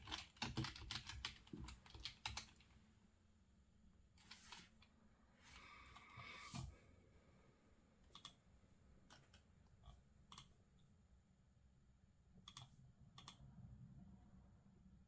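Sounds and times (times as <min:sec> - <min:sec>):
computer keyboard clicks: 0:00.0 - 0:02.6, 0:08.1 - 0:08.4, 0:12.5 - 0:13.4
low room hum: 0:00.1 - 0:15.0.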